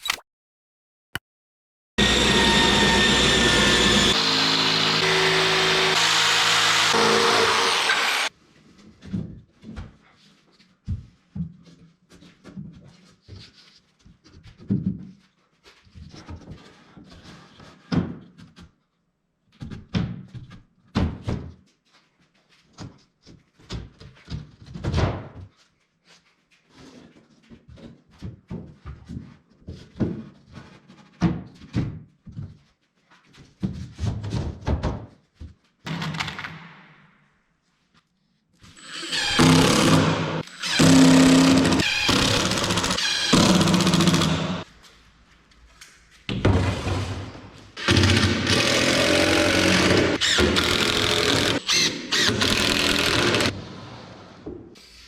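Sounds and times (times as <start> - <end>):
power tool running loudly: 2.0 - 8.3, 38.8 - 44.6, 47.8 - 53.6.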